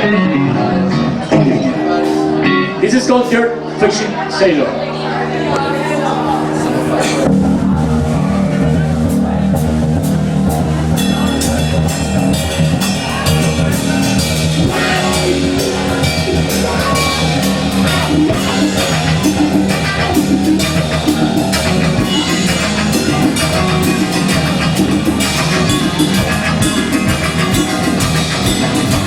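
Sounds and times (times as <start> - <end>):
bass guitar: 0.0 - 29.0
electric guitars: 0.0 - 29.0
drum kit: 6.3 - 29.0.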